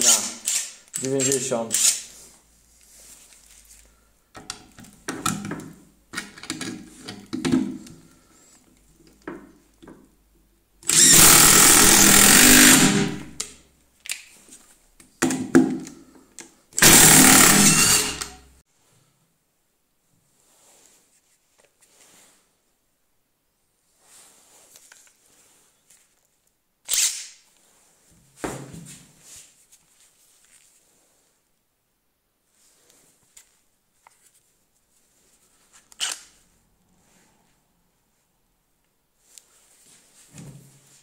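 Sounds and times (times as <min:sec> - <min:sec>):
impact driver hammering screws: 0:00.0 - 0:02.0, 0:10.8 - 0:13.4, 0:16.8 - 0:18.4.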